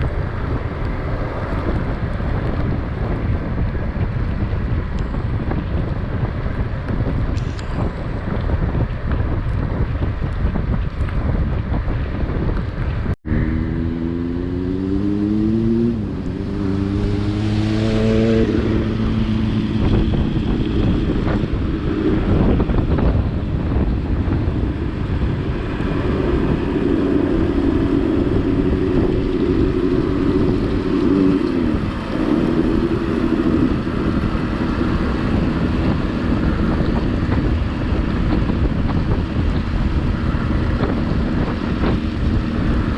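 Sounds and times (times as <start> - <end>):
wind buffeting microphone: 0.0 - 42.9
vehicle engine revving: 13.2 - 42.9.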